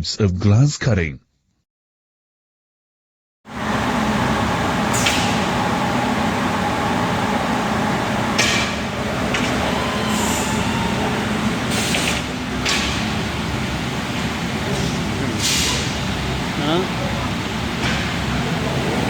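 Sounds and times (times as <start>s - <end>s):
glass cutting machine droning: 3.5s - 17.8s.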